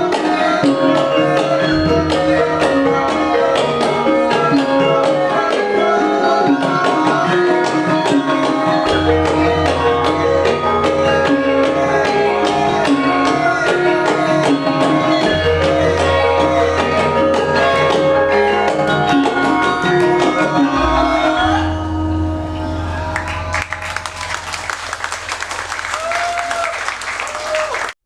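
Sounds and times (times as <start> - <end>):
hand drum beat: 0.0 - 21.3
gamelan ensemble playing: 0.0 - 27.7.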